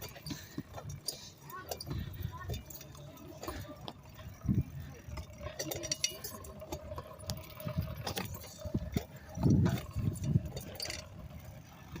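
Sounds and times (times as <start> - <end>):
bicycle rattling and clicking: 0.0 - 12.0.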